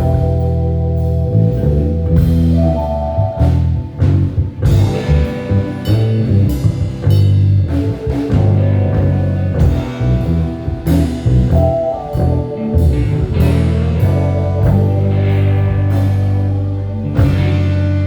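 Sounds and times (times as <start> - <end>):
drum kit hits: 0.0 - 18.0
electric bass line: 0.0 - 18.0
live band playing: 0.0 - 18.0.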